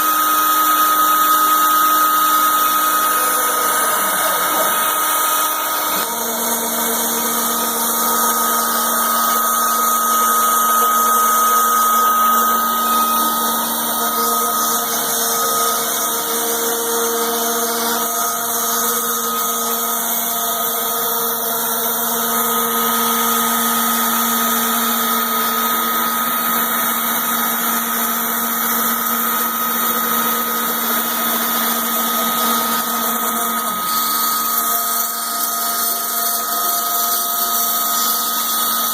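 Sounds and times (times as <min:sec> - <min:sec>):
router spindle whine: 0:00.0 - 0:38.9.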